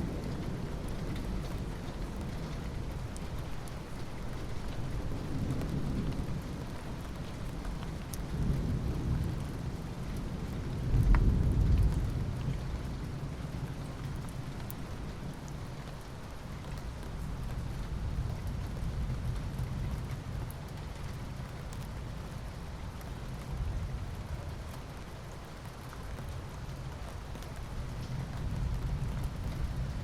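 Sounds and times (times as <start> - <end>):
steady rain: 0.0 - 30.0
low thunder rumbling: 4.7 - 14.7.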